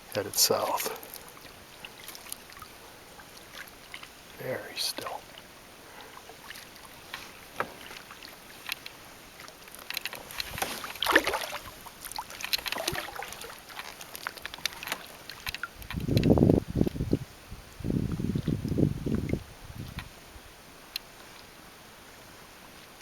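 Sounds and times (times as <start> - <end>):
water dripping off paddle: 0.4 - 17.0
paddle splashing in water: 0.9 - 4.4, 5.2 - 16.3.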